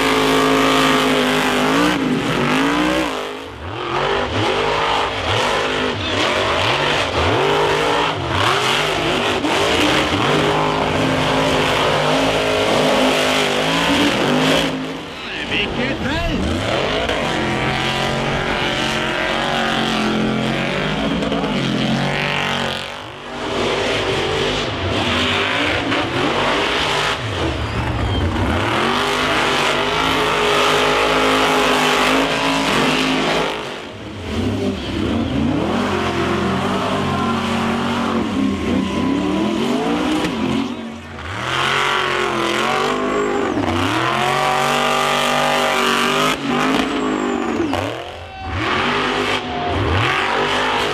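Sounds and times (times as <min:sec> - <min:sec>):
truck engine revving: 0:00.0 - 0:50.9.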